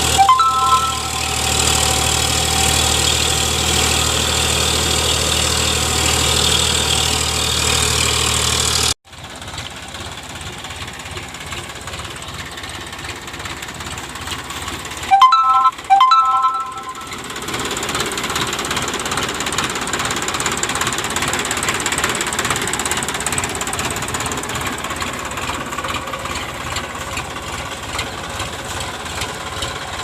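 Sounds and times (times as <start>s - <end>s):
horn beeps: 0.0s - 2.1s, 15.1s - 17.3s
diesel tractor engine running: 0.0s - 15.1s, 17.0s - 30.0s.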